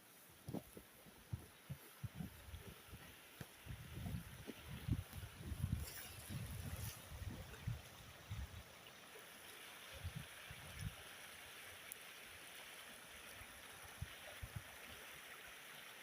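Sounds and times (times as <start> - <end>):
river water flowing: 0.0 - 16.0
wind buffeting microphone: 0.5 - 8.6.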